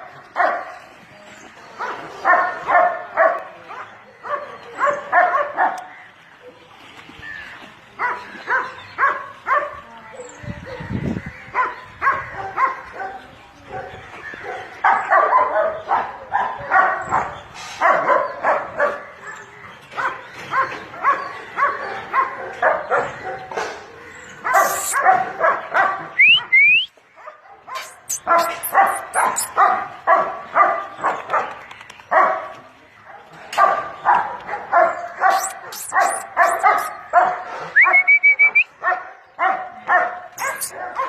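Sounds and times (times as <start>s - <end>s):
dog barking: 0.4s - 0.7s, 1.8s - 5.9s, 8.0s - 9.8s, 11.6s - 23.8s, 24.4s - 26.2s, 27.2s - 31.5s, 32.1s - 32.5s, 33.1s - 38.0s, 38.8s - 41.0s
short rising chirps: 27.8s - 29.5s.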